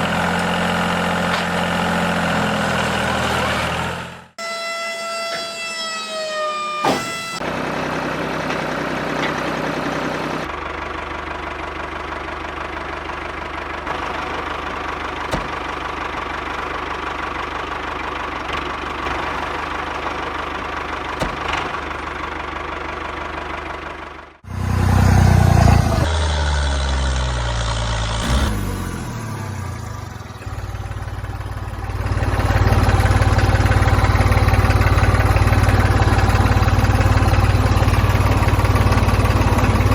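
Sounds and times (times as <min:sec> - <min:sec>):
engine-like machine running: 0:00.0 - 0:04.4, 0:06.0 - 0:39.9.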